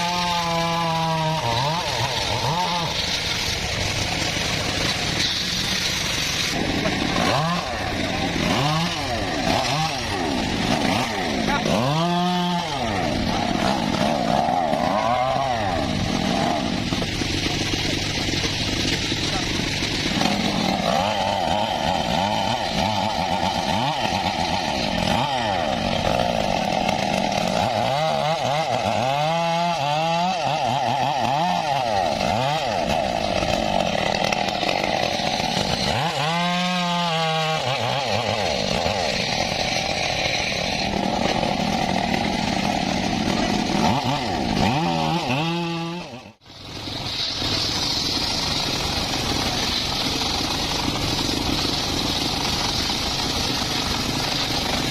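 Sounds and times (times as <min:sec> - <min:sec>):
engine-driven saw cutting wood: 0:00.0 - 0:54.9.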